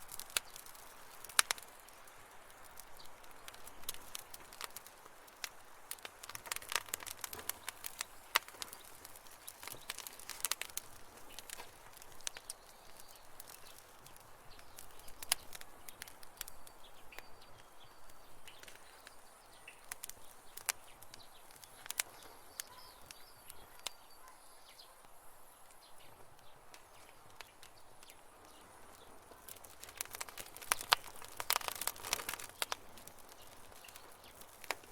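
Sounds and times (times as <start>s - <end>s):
campfire crackling: 0.0s - 34.9s
faint bird chirps: 14.5s - 29.6s.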